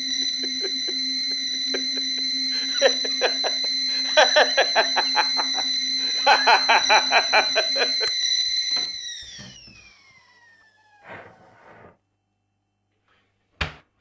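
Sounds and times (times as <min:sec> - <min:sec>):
high-pitched whistling tone: 0:00.0 - 0:10.4
person laughing: 0:00.2 - 0:08.2.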